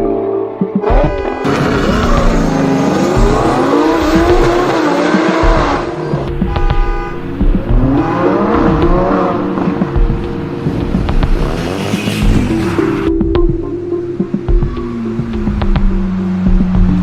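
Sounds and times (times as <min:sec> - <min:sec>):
background music with held notes: 0:00.0 - 0:17.0
sports car engine revving: 0:00.9 - 0:13.2.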